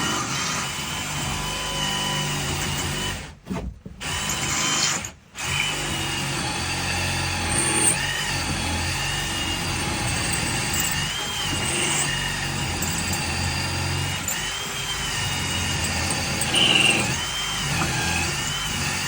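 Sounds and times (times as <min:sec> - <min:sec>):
small motor humming and whining: 0:09.0 - 0:19.0.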